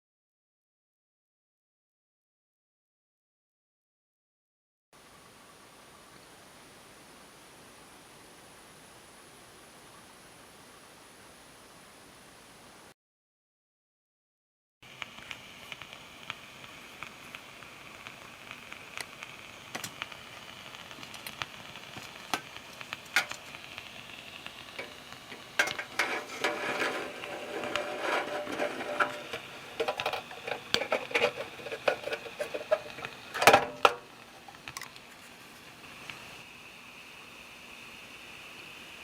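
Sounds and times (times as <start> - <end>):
toy steam engine hissing: 15.0 - 39.0.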